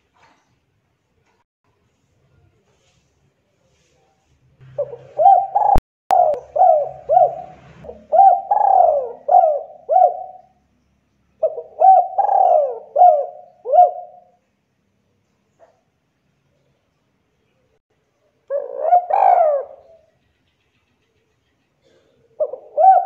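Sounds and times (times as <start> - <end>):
dove cooing: 4.7 - 10.6, 11.4 - 14.4, 18.5 - 20.1, 21.8 - 23.0.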